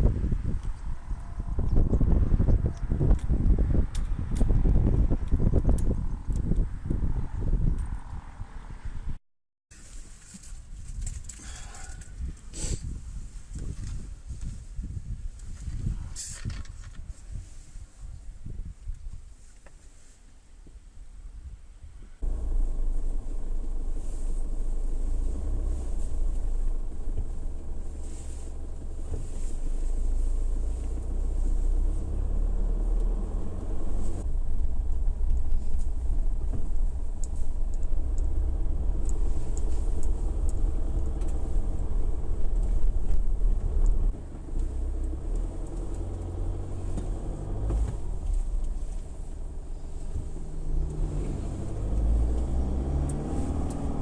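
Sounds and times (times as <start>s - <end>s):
motor vehicle rumbling: 0.0s - 9.2s, 9.8s - 18.6s, 22.0s - 54.0s.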